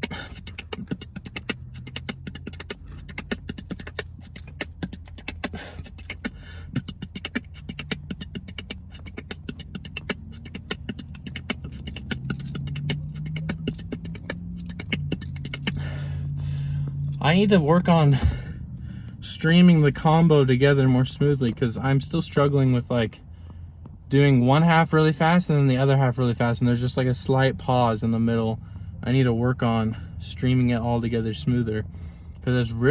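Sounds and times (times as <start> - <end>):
person beatboxing: 0.0 - 18.6
steady low hum: 0.0 - 32.9.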